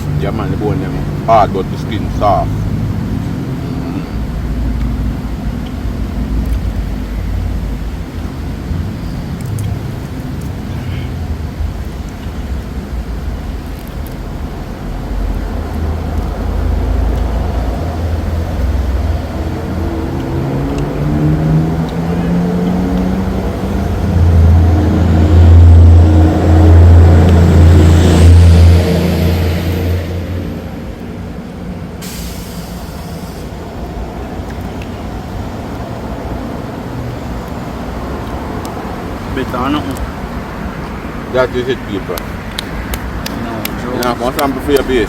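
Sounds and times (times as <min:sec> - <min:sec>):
heavy vehicle engine running: 0:00.0 - 0:45.0
short hiss: 0:32.0 - 0:33.5.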